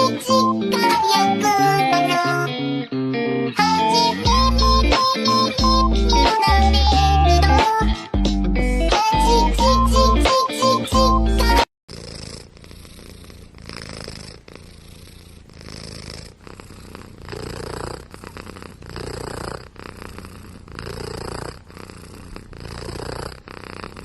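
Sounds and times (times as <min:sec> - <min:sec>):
cat purring: 0:11.4 - 0:24.0.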